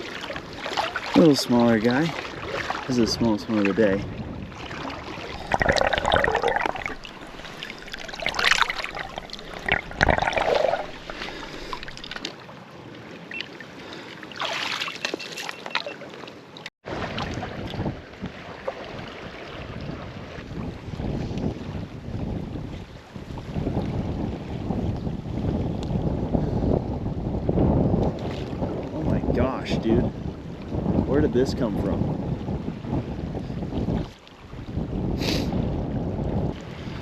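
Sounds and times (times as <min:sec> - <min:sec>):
river water running and splashing: 0:00.0 - 0:21.8.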